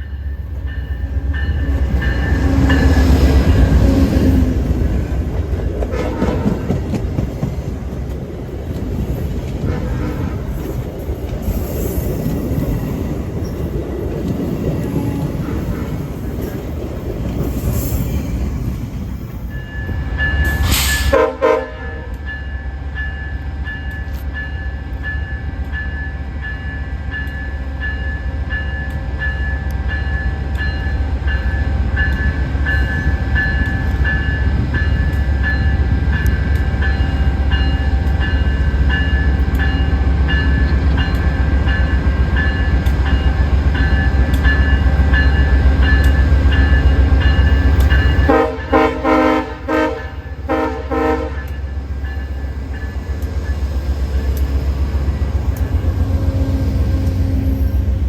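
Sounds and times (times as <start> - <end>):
locomotive bell ringing: 0.0 - 4.0, 19.4 - 20.7, 21.9 - 58.0
locomotive horn blast: 5.9 - 6.7, 9.6 - 10.6, 21.0 - 22.2, 48.2 - 51.6.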